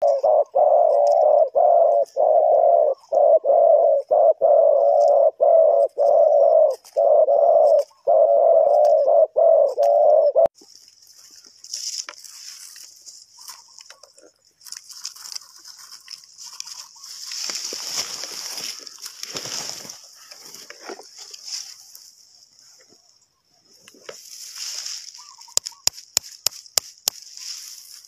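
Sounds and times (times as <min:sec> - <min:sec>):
dove cooing: 0:00.0 - 0:10.5
rustling and crunching: 0:10.6 - 0:28.0.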